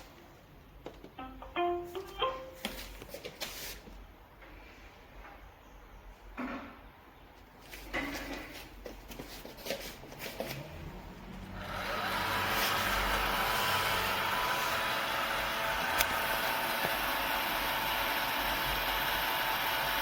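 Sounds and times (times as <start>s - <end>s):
robot vacuum motors whining: 11.4s - 20.0s.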